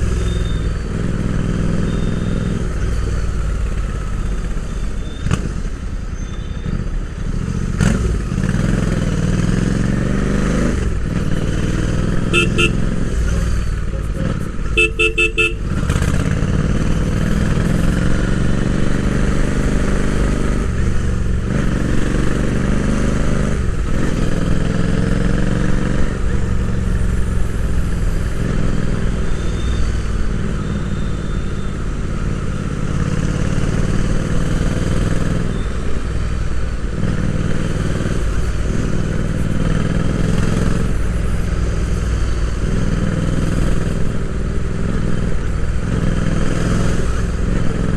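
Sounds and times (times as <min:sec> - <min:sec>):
horn short beeps: 0:00.1 - 0:00.9, 0:12.1 - 0:15.8
motorcycle engine accelerating: 0:07.3 - 0:29.3, 0:30.2 - 0:47.9.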